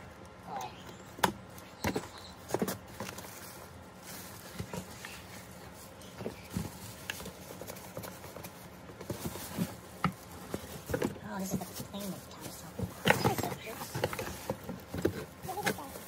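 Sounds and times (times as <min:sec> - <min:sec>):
packaging taps and rustles: 0:01.1 - 0:16.0.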